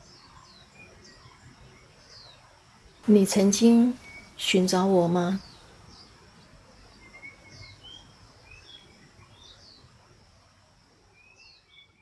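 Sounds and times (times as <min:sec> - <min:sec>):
birds chirping and whistling: 0:03.7 - 0:04.6, 0:06.9 - 0:09.8.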